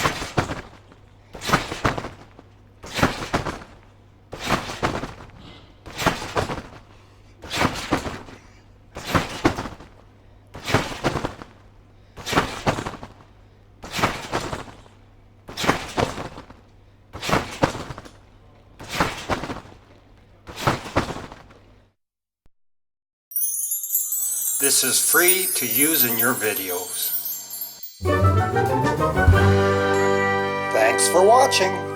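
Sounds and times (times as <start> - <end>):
trampoline bouncing: 0.0 - 21.8.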